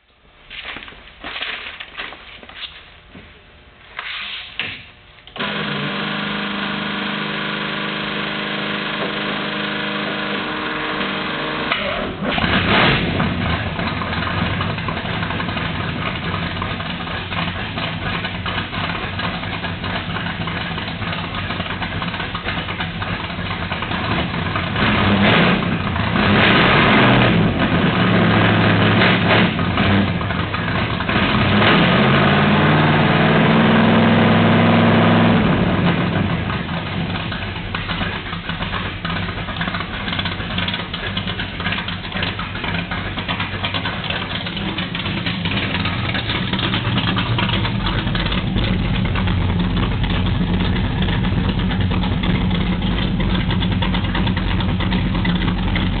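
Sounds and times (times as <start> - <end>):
starter hum: 4.6 - 56.0
car engine running and revving: 5.4 - 56.0
engine knocks: 11.8 - 26.2, 35.3 - 56.0.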